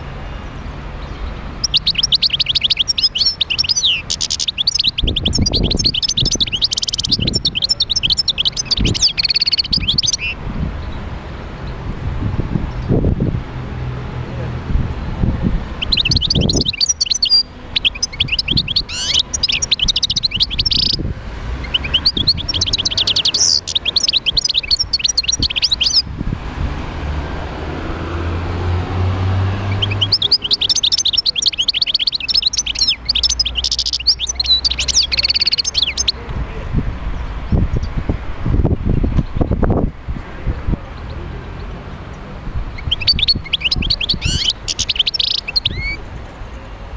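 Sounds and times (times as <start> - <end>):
goldfinch twittering: 1.0 - 10.9, 15.8 - 21.0, 21.6 - 26.1, 29.6 - 36.2, 42.7 - 46.1.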